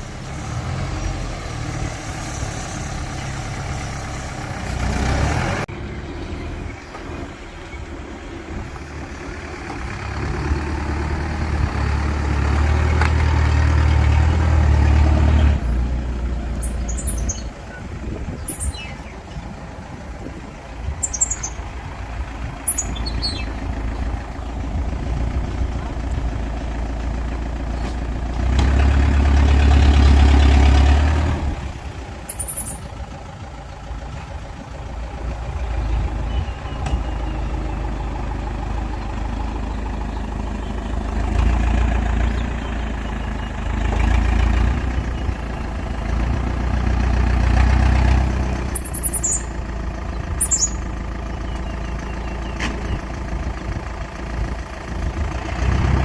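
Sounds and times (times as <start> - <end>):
heavy diesel machinery working: 0.0 - 56.0
high-pitched squeaks: 32.3 - 32.9, 48.8 - 49.5.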